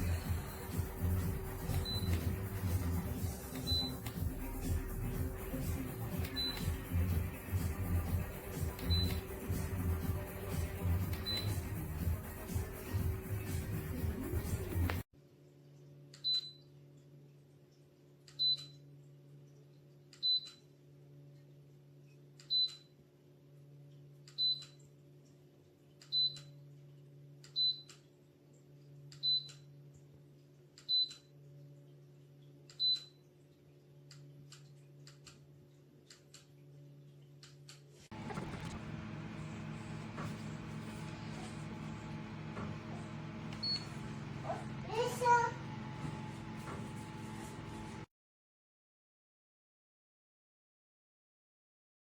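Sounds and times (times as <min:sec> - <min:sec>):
control panel beeping: 0:01.6 - 0:02.8, 0:03.5 - 0:04.2, 0:06.1 - 0:07.1, 0:08.5 - 0:09.4, 0:11.0 - 0:11.8, 0:42.8 - 0:44.3
low steady hum: 0:38.1 - 0:48.1.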